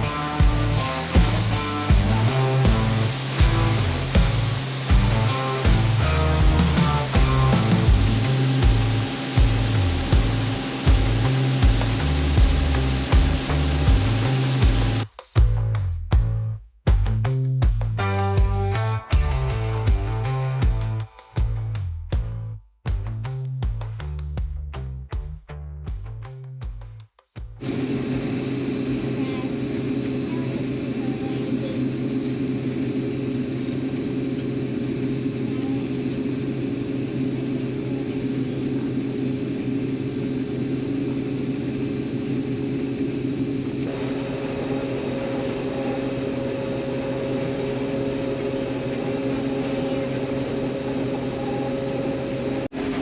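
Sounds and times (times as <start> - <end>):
combine harvester drone: 0.0 - 15.0, 27.6 - 53.0.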